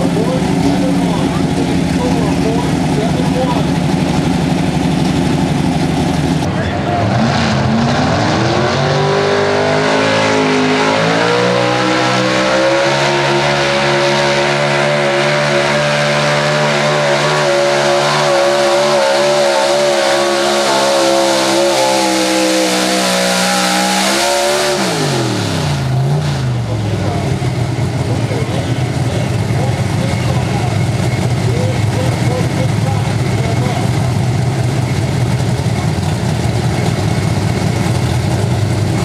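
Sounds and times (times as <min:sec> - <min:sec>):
truck engine at full throttle: 0:00.0 - 0:39.0.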